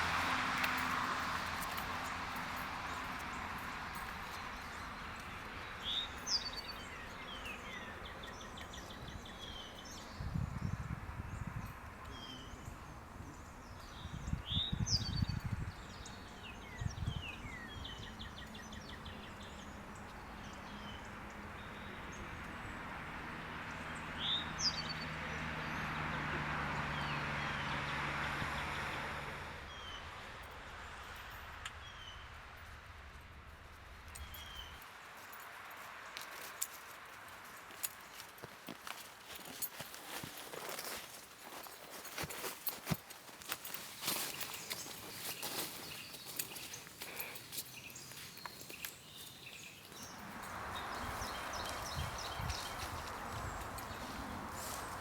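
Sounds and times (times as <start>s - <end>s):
rush of wind: 0.0s - 19.6s, 49.4s - 55.0s
small birds chirping and trilling: 1.4s - 27.9s, 37.6s - 55.0s
wind rumble on microphone: 8.8s - 20.1s, 50.0s - 55.0s.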